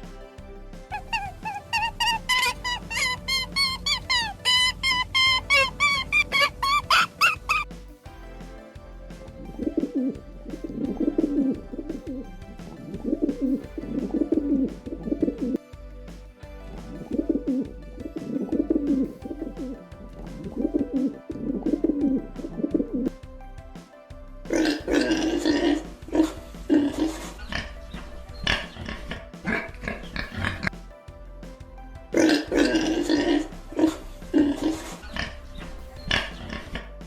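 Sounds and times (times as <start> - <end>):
background music: 0.0 - 37.0.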